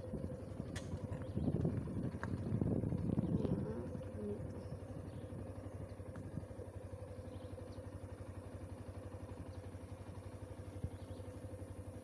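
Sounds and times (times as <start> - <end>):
engine running at low revs: 0.0 - 12.0.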